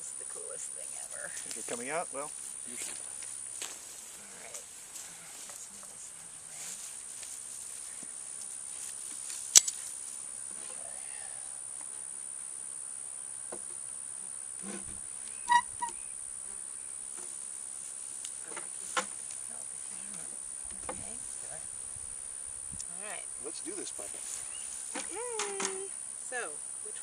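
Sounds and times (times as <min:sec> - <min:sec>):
high-pitched insect buzz: 0:00.0 - 0:27.0
sharp click: 0:09.5 - 0:09.8.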